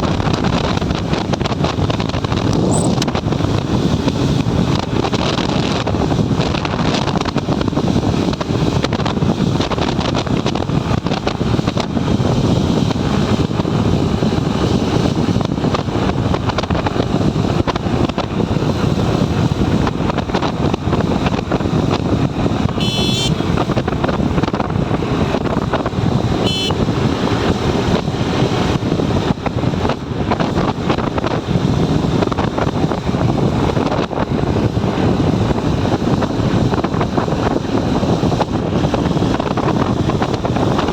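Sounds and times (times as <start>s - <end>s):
motorcycle engine running: 0.0s - 40.9s
wind rushing over helmet: 0.0s - 40.9s
high horn toots: 22.7s - 23.6s, 26.4s - 26.9s.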